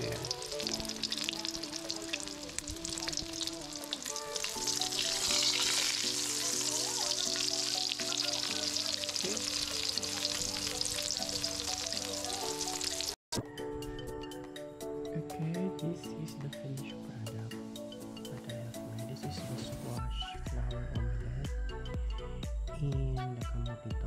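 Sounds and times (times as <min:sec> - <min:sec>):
omelette sizzling in oil: 0:00.0 - 0:13.2
background music: 0:00.0 - 0:24.0.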